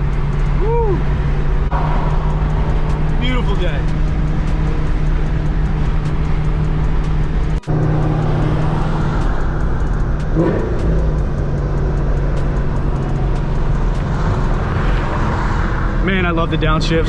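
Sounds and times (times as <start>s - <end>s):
car engine cruising at low revs: 0.0s - 17.0s.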